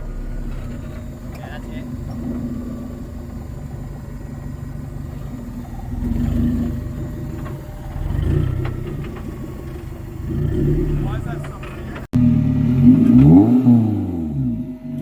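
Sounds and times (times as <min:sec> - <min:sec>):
engine running and revving: 0:00.0 - 0:15.0.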